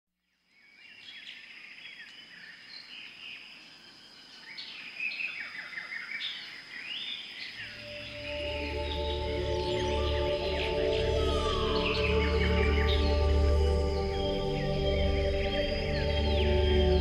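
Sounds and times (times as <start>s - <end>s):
birds singing and chirping: 0.6s - 17.0s
soft ambient music: 7.6s - 17.0s
high-pitched drone: 7.7s - 17.0s.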